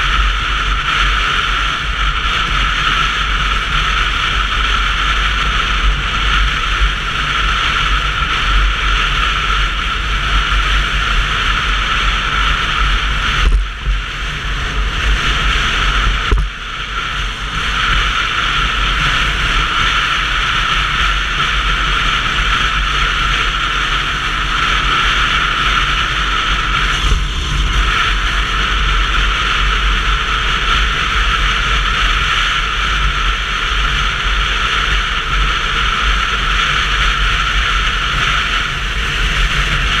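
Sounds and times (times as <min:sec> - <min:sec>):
road noise: 0:00.0 - 0:40.0
wind buffeting microphone: 0:01.8 - 0:32.0.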